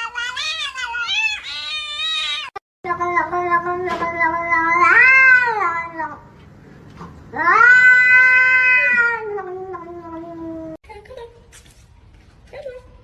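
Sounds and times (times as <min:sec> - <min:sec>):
cat yowling: 0:00.0 - 0:02.5, 0:04.2 - 0:06.2, 0:07.3 - 0:10.8.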